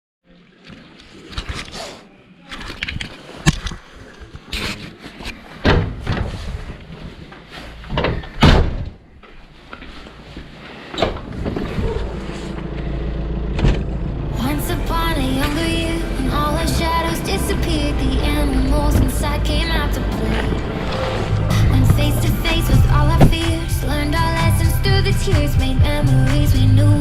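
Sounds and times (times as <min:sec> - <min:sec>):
irregular knocks and clunks: 0:05.6 - 0:09.4, 0:13.5 - 0:14.0, 0:20.6 - 0:23.7
low steady rumble: 0:11.2 - 0:27.0.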